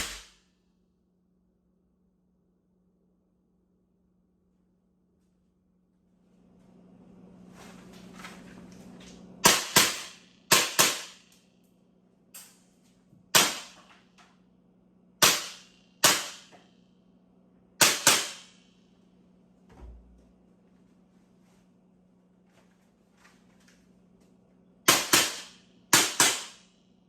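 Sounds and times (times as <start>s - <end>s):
airsoft pistol shots with echo: 0.0s - 0.4s, 9.4s - 11.3s, 13.3s - 13.8s, 15.2s - 16.5s, 17.8s - 18.6s, 24.9s - 26.6s.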